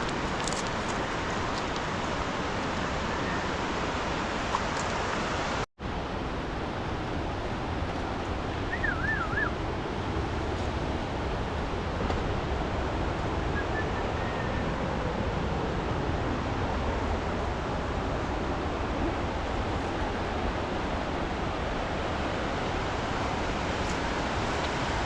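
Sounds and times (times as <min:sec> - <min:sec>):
flowing water: 0:00.0 - 0:25.0
wind: 0:00.0 - 0:25.0
short warbling whistle: 0:08.7 - 0:09.5.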